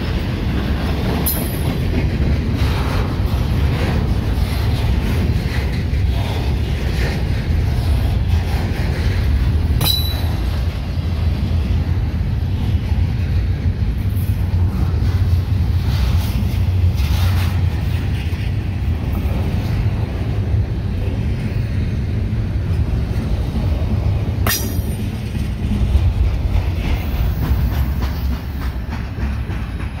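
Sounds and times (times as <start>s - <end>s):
freight train wheels clacking: 0.0s - 30.0s.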